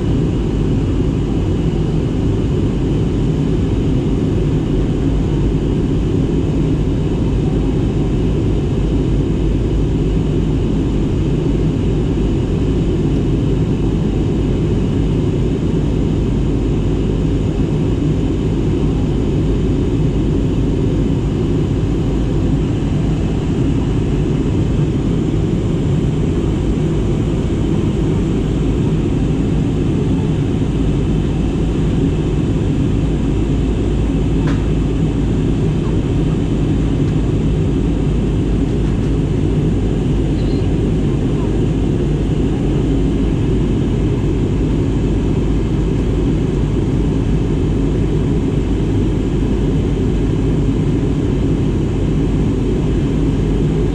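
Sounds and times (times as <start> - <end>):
airliner engine drone in cabin: 0.0 - 53.9.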